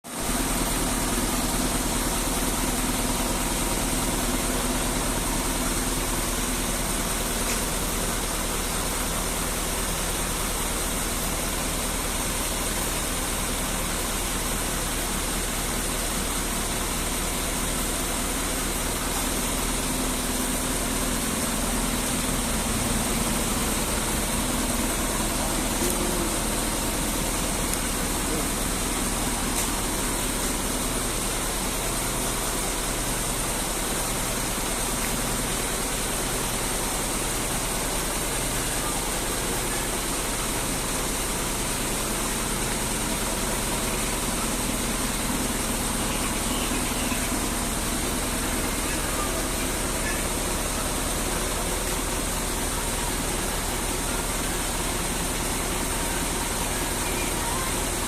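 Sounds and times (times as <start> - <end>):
truck engine idling: 0.1 - 58.0.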